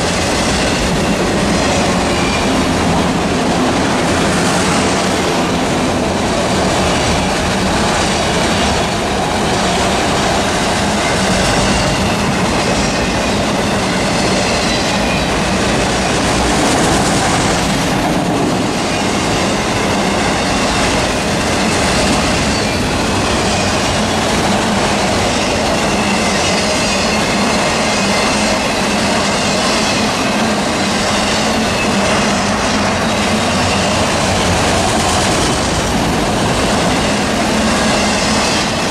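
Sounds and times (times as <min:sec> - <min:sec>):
train wheels rumbling on rails: 0:00.0 - 0:38.9
high wheel squeal: 0:00.6 - 0:03.0, 0:11.0 - 0:16.3, 0:18.8 - 0:24.2, 0:25.1 - 0:35.8.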